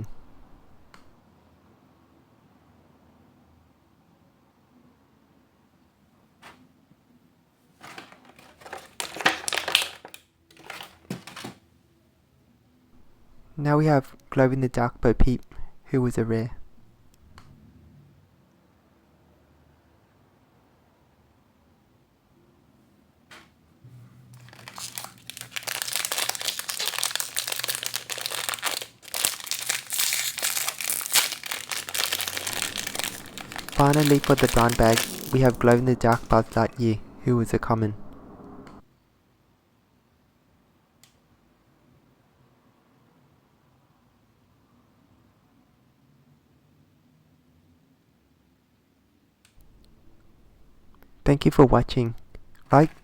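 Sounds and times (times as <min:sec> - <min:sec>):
plastic packaging crinkling: 0:07.8 - 0:11.5, 0:24.4 - 0:37.0, 0:52.0 - 0:53.0.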